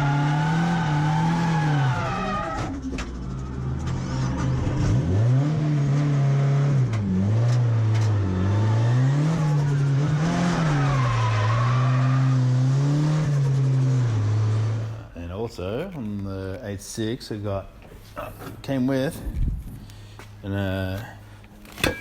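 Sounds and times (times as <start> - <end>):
car engine revving hard: 4.1 - 14.9.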